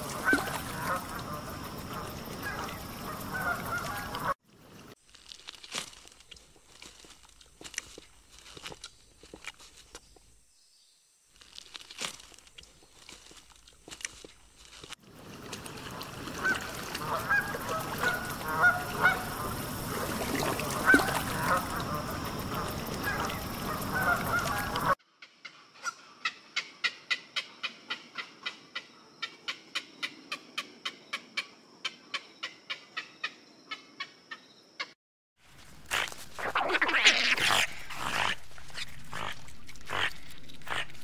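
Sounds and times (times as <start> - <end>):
waterfowl honking: 0.0 - 4.4, 15.9 - 25.0.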